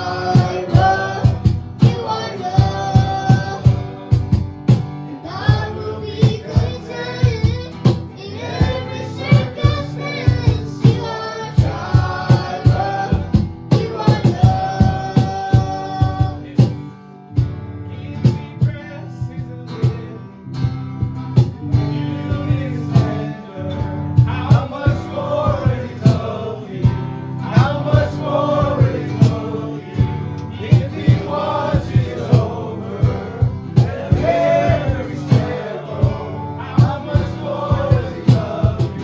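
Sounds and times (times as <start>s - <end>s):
person singing: 0.0s - 4.2s, 5.1s - 16.7s
steady drum beat: 0.0s - 17.7s, 18.3s - 39.0s
guitar: 0.0s - 39.0s.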